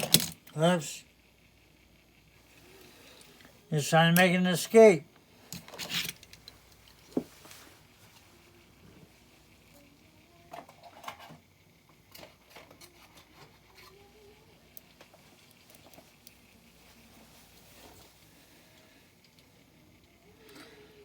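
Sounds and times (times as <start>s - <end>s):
toy trucks clicking and tapping: 0.0s - 0.6s, 10.4s - 14.1s.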